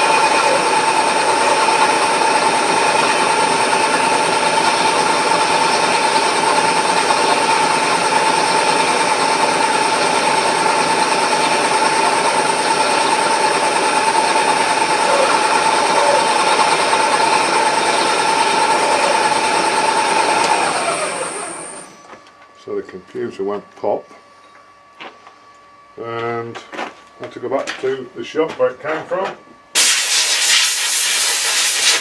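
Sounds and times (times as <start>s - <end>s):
machine tool whining: 0.0s - 22.4s.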